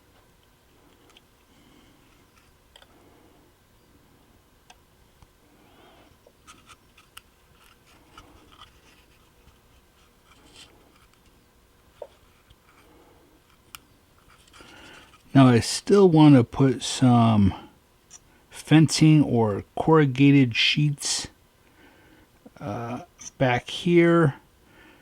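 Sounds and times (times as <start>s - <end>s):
small parts clicking and scratching: 6.4s - 11.4s, 12.1s - 15.3s.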